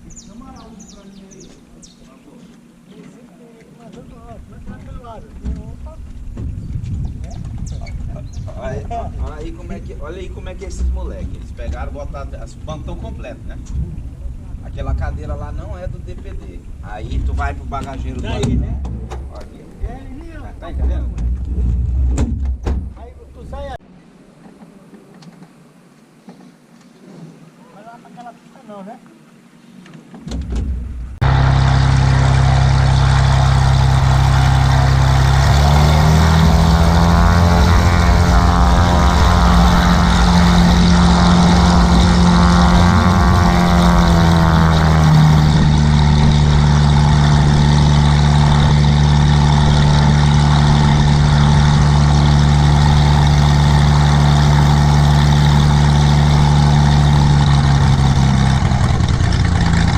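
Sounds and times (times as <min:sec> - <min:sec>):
aircraft engine starting and running: 0:31.2 - 0:59.9.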